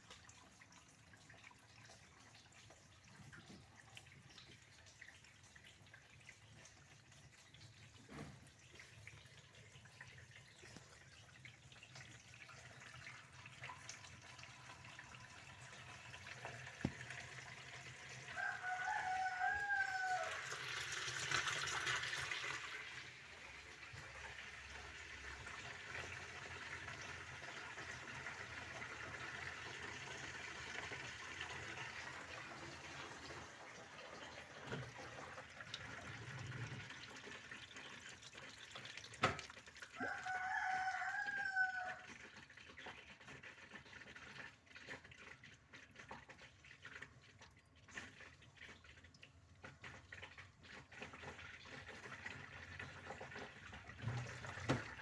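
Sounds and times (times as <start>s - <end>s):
rooster crowing: 18.3s - 20.6s, 40.0s - 42.1s.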